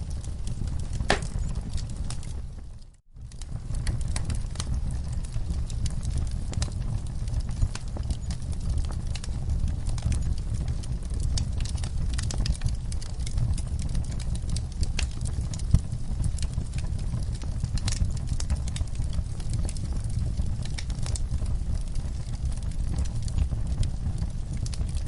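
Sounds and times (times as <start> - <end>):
low rumble of flames: 0.0 - 25.0
wood fire crackling and popping: 0.0 - 25.0.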